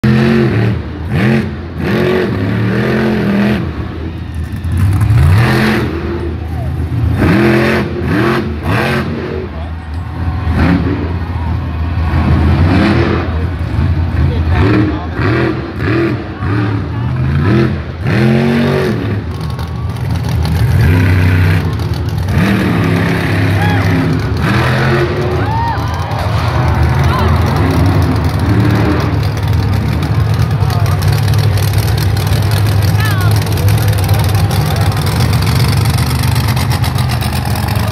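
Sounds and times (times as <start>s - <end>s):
truck engine revving: 0.0s - 37.9s.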